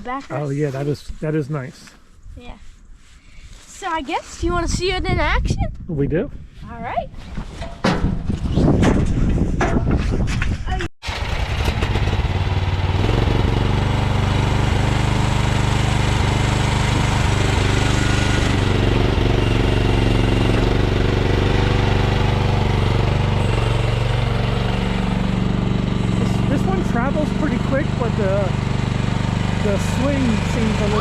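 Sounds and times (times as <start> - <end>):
excavator engine running: 11.0 - 31.0.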